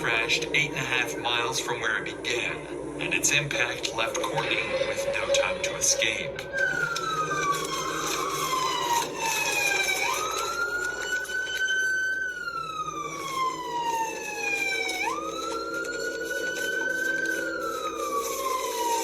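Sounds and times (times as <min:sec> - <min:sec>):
police siren wailing: 0:00.0 - 0:19.0.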